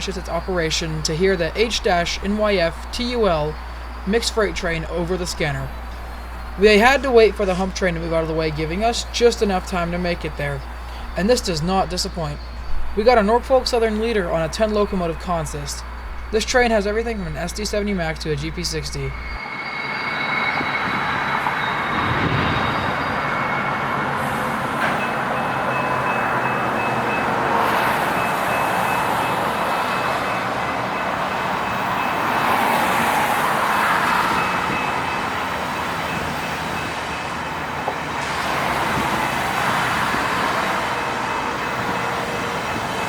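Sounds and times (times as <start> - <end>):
thin high whine: 0.0 - 27.2
freight train rumbling past: 0.0 - 43.0.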